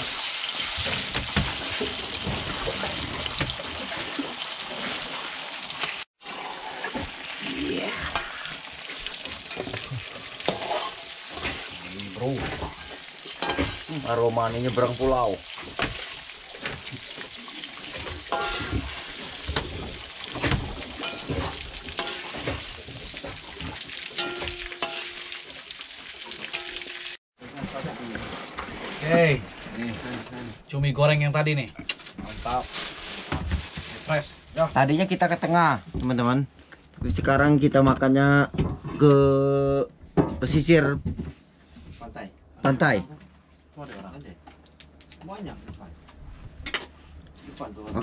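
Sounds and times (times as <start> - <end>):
food sizzling in oil: 0.0 - 27.2
fork stirring against pan: 9.2 - 11.8, 12.6 - 13.9, 18.2 - 19.7, 21.0 - 22.7, 24.1 - 25.4
metal spatula scraping a wok: 9.3 - 11.8, 12.6 - 13.9, 17.9 - 20.0, 20.8 - 22.7
wok ringing: 18.3 - 18.7, 21.0 - 21.4, 22.0 - 22.4, 24.1 - 25.5, 26.5 - 27.2.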